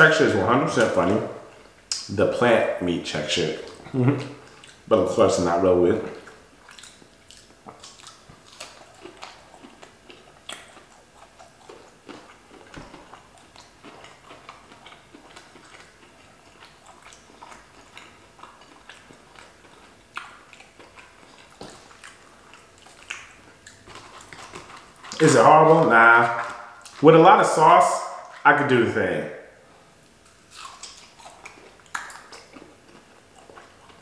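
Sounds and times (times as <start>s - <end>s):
chewing crunchy food: 3.4s - 27.1s, 29.8s - 34.0s
wet mouth clicks: 6.2s - 15.0s, 22.9s - 25.2s, 30.5s - 32.7s.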